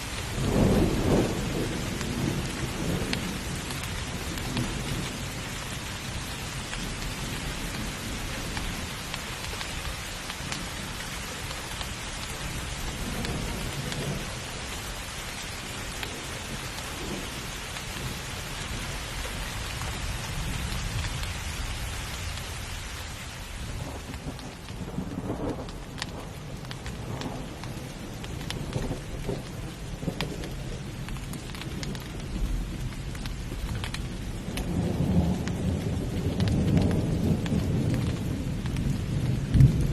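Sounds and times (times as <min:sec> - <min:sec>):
heavy rain pouring: 0:00.0 - 0:39.9
raindrops tapping: 0:00.0 - 0:39.9
deep rolling thunder: 0:00.1 - 0:05.6, 0:12.4 - 0:14.7, 0:15.7 - 0:21.2, 0:23.6 - 0:39.9.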